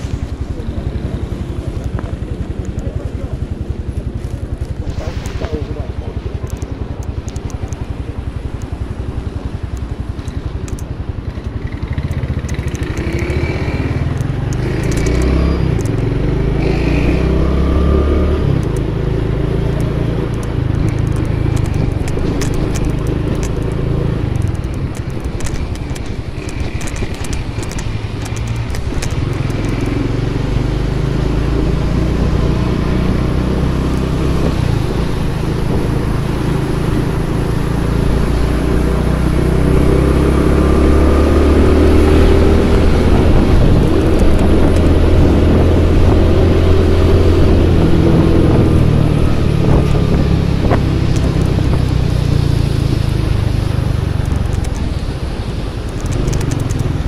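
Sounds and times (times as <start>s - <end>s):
motorcycle engine running: 0.0s - 57.0s
light rustling and clicks: 1.5s - 16.1s, 19.6s - 30.2s, 42.1s - 57.0s.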